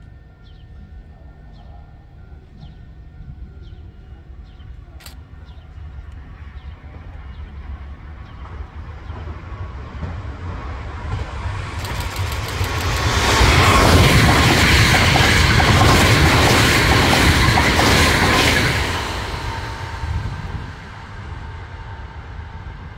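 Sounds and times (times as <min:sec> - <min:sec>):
electric train passing at speed: 0:00.0 - 0:22.9
wheels clicking on rails: 0:11.0 - 0:19.4.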